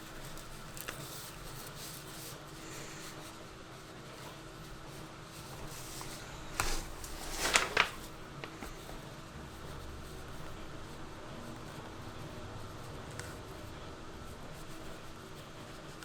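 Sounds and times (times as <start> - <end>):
rustling handling noises: 0.0 - 9.1.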